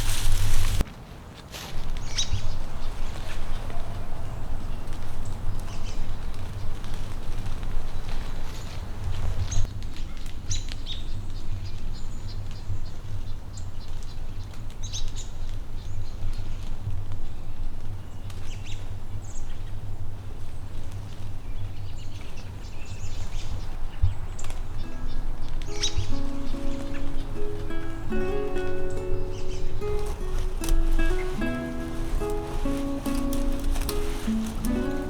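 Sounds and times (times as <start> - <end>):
small birds chirping: 1.9 - 9.7, 20.4 - 35.0.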